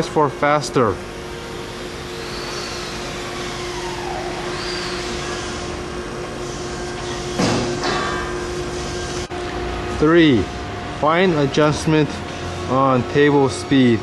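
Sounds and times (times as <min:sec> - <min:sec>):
hydraulic motor humming: 0:00.0 - 0:14.0
faint whines: 0:01.1 - 0:09.5.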